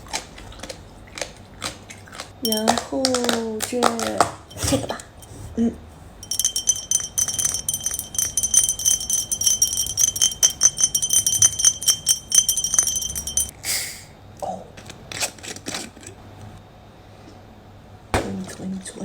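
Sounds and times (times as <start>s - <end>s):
high ringing chime: 4.5s - 5.5s, 6.2s - 13.5s.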